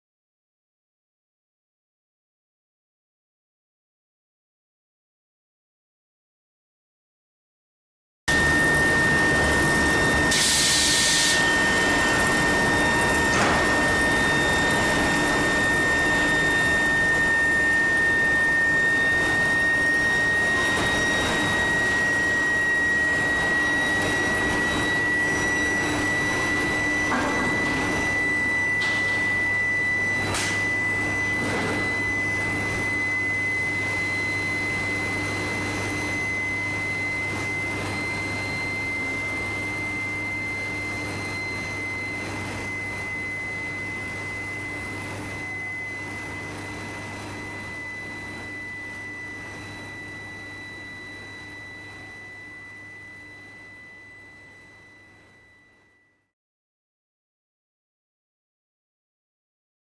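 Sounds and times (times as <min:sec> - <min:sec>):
high whine rising in pitch: 0:08.3 - 0:54.4
machine noise and low hum: 0:08.3 - 0:56.3.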